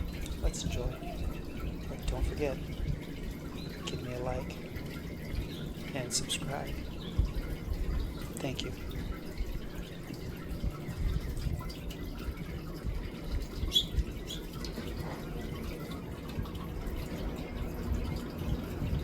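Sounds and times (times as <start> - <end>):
finches chirping: 0.0 - 7.5, 13.7 - 14.5
low background rumble: 0.0 - 19.0.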